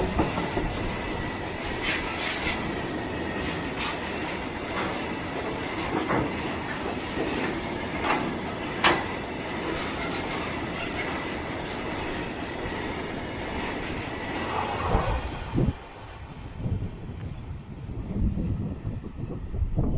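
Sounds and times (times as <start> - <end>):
wheels clacking over rail joints: 0.0 - 15.5
train wheels rumbling on rail: 0.0 - 19.9.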